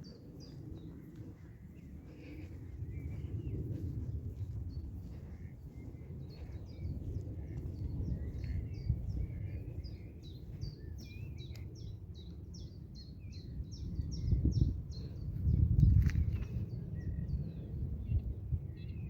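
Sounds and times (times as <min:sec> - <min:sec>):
low warbling birdsong: 0:00.0 - 0:19.0
songbirds singing: 0:00.0 - 0:19.0
steady low rumble: 0:00.0 - 0:19.0.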